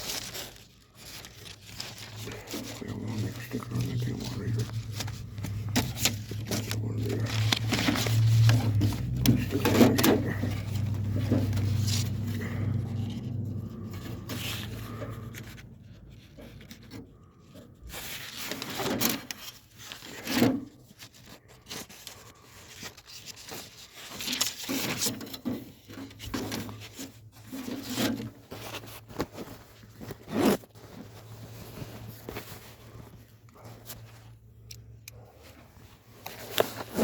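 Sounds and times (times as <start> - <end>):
rubbing and scraping: 0.0 - 34.4, 35.2 - 37.0
low steady hum: 0.1 - 18.6.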